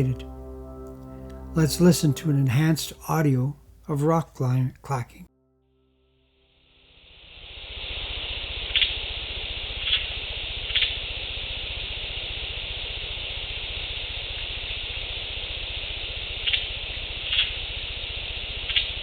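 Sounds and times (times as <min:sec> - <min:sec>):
loud steady hiss: 0:07.0 - 0:16.4.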